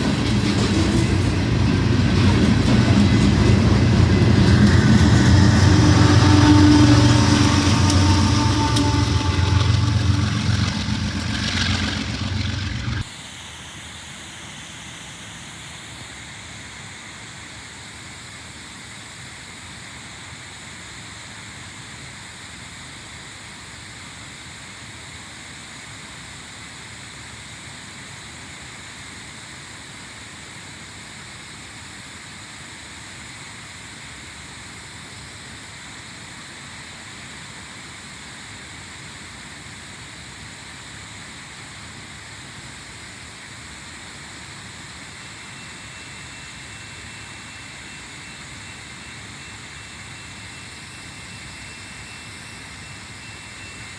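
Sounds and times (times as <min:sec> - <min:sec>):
diesel locomotive running: 0:00.0 - 0:17.2, 0:34.7 - 0:53.9
steady background hiss: 0:13.0 - 0:53.9.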